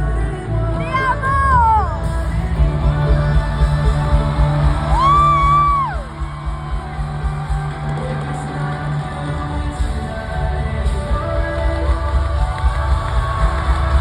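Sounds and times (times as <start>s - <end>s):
live pop music with heavy bass: 0.0s - 14.0s
crowd whooping and shouting: 2.8s - 14.0s.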